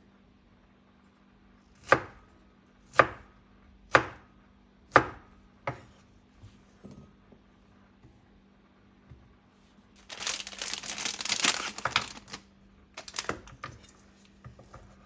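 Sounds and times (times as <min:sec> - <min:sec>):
knife chopping on cutting board: 0:01.8 - 0:02.2, 0:02.9 - 0:03.3, 0:03.9 - 0:04.3, 0:04.9 - 0:07.1.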